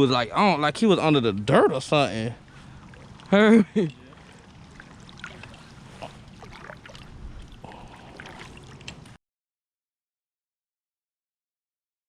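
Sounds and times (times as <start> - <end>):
water lapping around kayak: 1.0 - 9.2.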